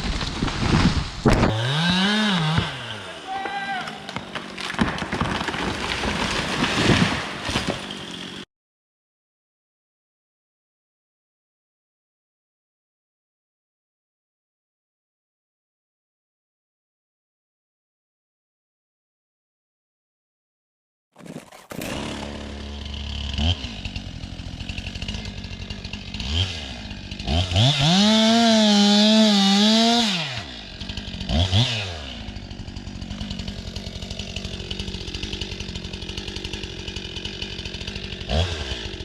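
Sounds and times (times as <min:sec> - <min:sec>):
chainsaw idling and revving: 0:00.2 - 0:08.5, 0:21.2 - 0:39.0.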